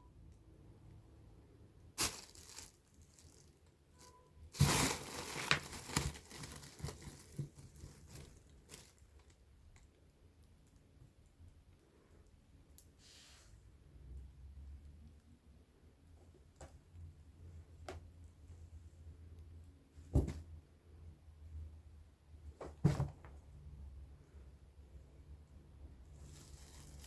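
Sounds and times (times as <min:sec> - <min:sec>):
rustling and crinkling: 0:02.0 - 0:11.2, 0:26.0 - 0:27.0.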